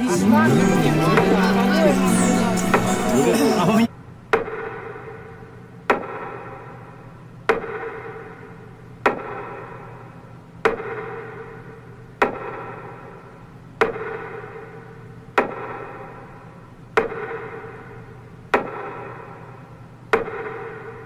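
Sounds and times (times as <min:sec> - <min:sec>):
metronome beats: 0:00.0 - 0:03.8.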